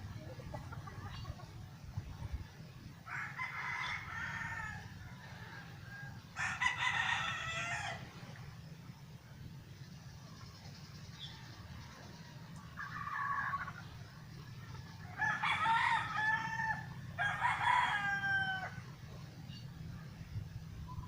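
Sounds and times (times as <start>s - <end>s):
steady low hum: 0.0s - 21.0s
rooster crowing: 3.1s - 8.0s, 15.2s - 18.8s.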